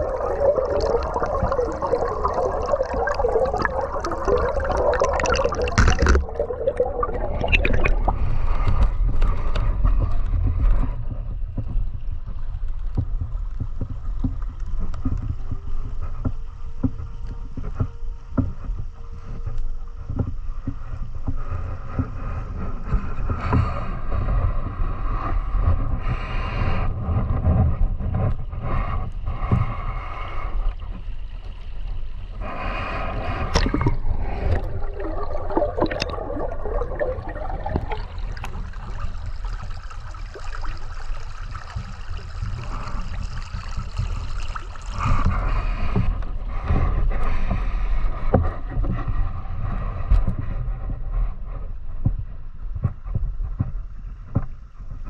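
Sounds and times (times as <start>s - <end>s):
river water flowing and gurgling: 0.0s - 10.5s, 30.1s - 47.5s.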